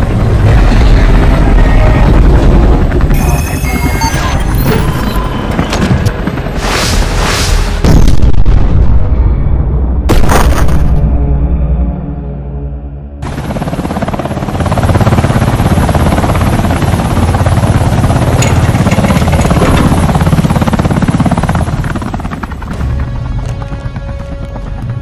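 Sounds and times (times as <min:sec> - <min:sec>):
helicopter rotor chopping: 0:00.0 - 0:07.2, 0:13.2 - 0:25.0.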